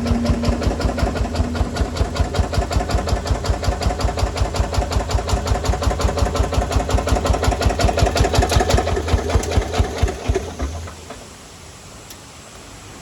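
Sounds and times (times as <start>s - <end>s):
diesel engine running: 0.0s - 11.4s.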